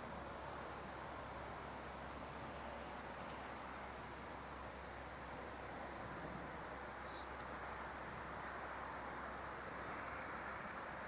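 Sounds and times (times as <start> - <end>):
steady hiss: 0.0 - 11.0
faint high chirp: 6.8 - 7.3.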